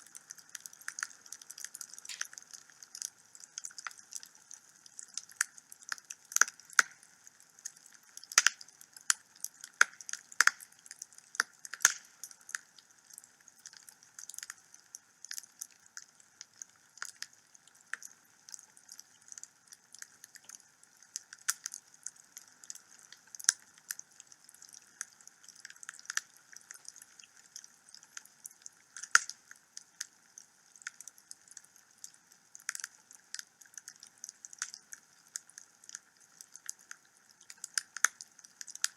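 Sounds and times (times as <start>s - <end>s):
faint steady hiss: 0.0s - 38.9s
wood fire crackling: 0.2s - 7.0s, 7.8s - 13.2s, 32.0s - 36.0s.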